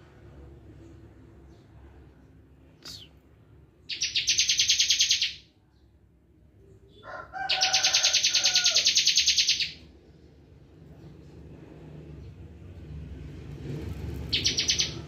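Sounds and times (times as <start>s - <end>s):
bird singing rapid trills: 3.8s - 5.5s, 7.5s - 9.8s, 14.3s - 15.0s.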